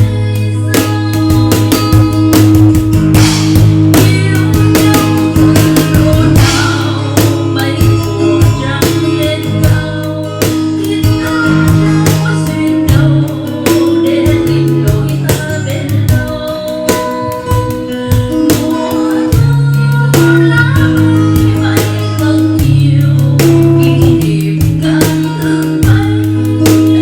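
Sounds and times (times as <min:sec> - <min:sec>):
bass notes: 0:00.0 - 0:27.0
drum kit beat: 0:00.0 - 0:27.0
guitar: 0:00.0 - 0:27.0
live band playing bolero: 0:00.0 - 0:27.0.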